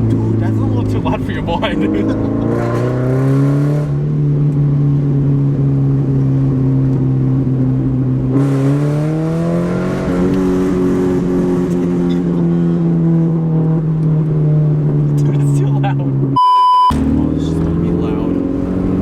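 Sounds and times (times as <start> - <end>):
car exhaust drone: 16.2 - 19.0.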